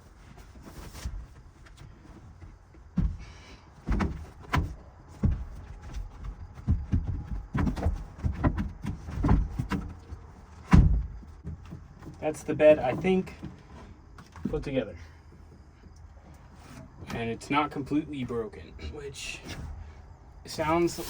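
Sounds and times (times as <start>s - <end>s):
bed frame pieces knocking: 1.9s - 13.2s.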